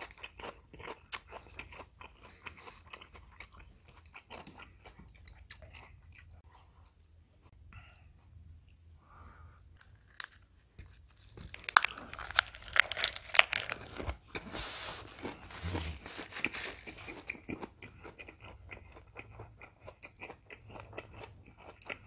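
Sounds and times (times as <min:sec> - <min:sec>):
soft chewing: 0:00.0 - 0:22.0
crisp crunching bites: 0:09.8 - 0:14.2.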